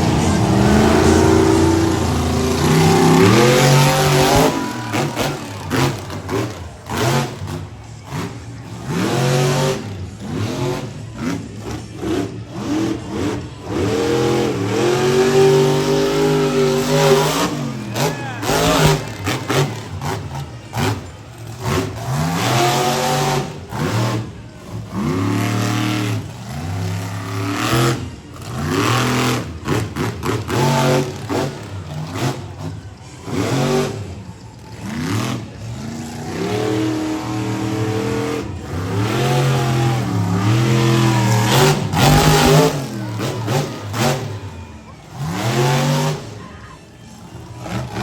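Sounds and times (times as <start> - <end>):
monster truck engine revving: 0.0 - 48.0.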